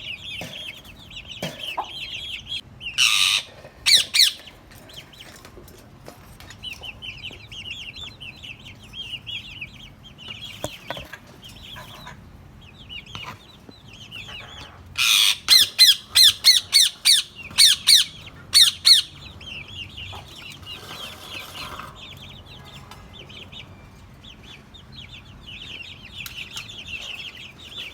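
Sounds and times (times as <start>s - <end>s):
parrot screeching: 3.0s - 4.4s, 15.0s - 19.1s
parrot chattering: 3.0s - 4.5s, 14.2s - 19.2s.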